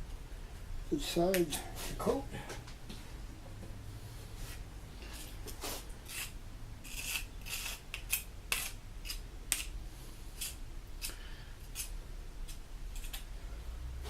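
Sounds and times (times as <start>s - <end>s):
cement scraped onto brick: 5.6s - 8.7s.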